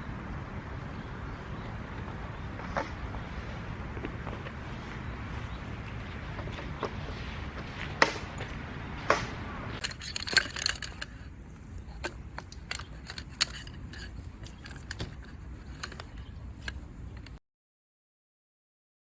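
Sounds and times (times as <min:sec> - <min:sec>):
outdoor background noise: 0:00.0 - 0:17.4
camping gear clicking and clinking: 0:05.8 - 0:17.4
loud sharp knocks: 0:07.9 - 0:08.4, 0:09.0 - 0:09.4.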